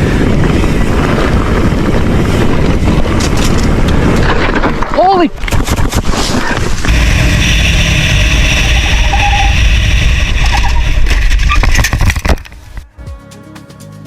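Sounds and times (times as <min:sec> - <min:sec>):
loud rumbling noise: 0:05.7 - 0:12.9
engine running: 0:06.8 - 0:12.9.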